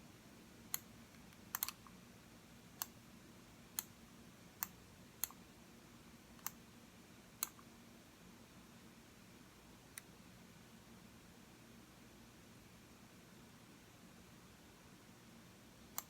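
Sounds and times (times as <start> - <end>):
computer mouse buttons clicking: 0.7 - 1.9, 4.6 - 5.4, 6.4 - 6.6, 7.4 - 7.7.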